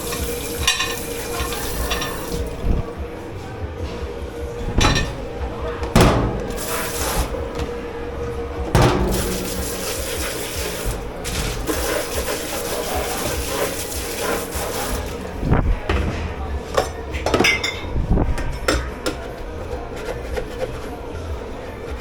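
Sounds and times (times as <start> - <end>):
water spraying: 0.0 - 2.9, 4.7 - 15.5
dishes and utensils clattering: 0.0 - 3.0, 3.8 - 20.9
faint machine hum: 0.0 - 22.0
sharp knock: 8.8 - 10.4.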